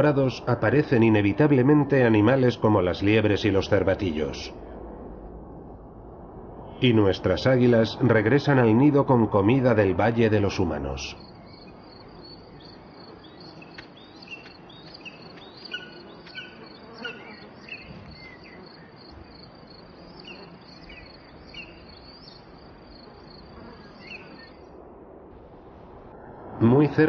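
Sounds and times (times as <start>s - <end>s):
insect chirring trill: 11.1s - 24.7s.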